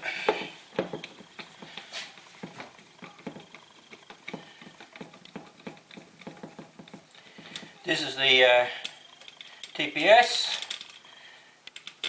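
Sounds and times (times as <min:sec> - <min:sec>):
hand tool clicking and tapping: 0:00.3 - 0:08.0.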